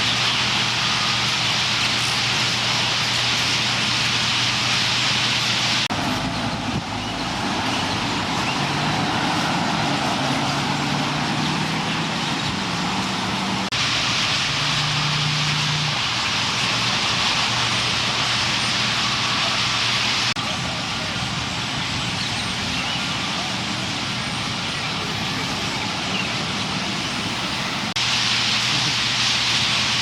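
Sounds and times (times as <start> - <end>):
traffic hum: 0.0 - 30.0
flock of birds chattering: 5.9 - 13.8, 17.8 - 28.0.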